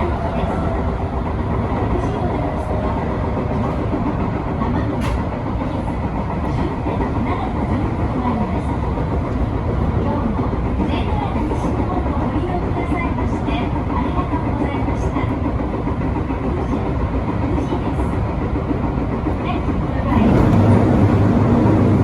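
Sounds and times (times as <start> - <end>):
train wheels rumbling: 0.0 - 22.0
clicks from the rails: 4.9 - 5.3.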